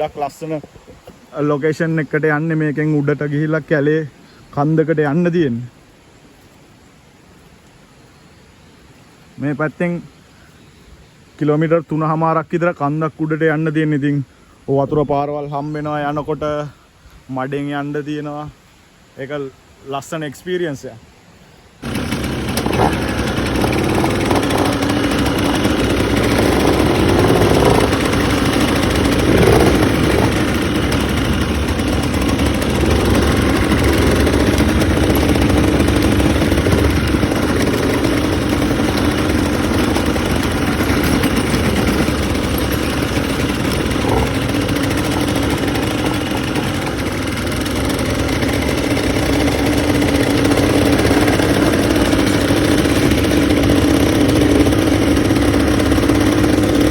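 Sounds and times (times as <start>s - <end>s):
quad bike engine running: 21.8s - 56.9s.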